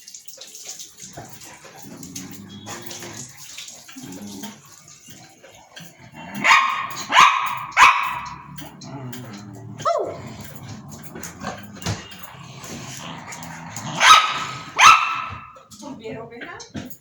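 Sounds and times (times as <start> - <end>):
dog barking: 6.4 - 8.5, 9.8 - 10.2, 13.8 - 15.6.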